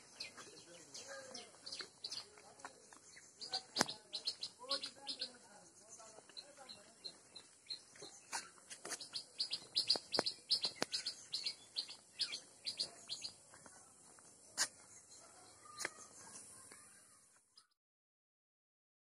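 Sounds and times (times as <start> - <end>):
small birds chirping: 0.0 - 17.8
sharp clicks: 3.7 - 4.0.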